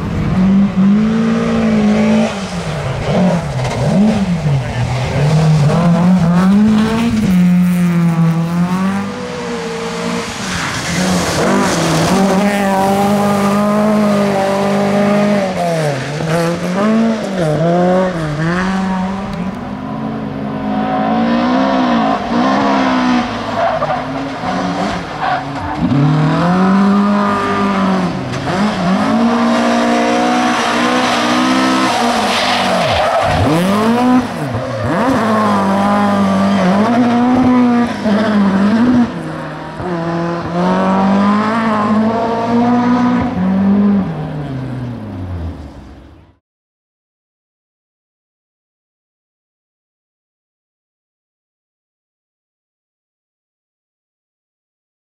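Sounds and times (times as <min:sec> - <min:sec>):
car engine revving hard: 0:00.0 - 0:19.6, 0:20.6 - 0:45.0.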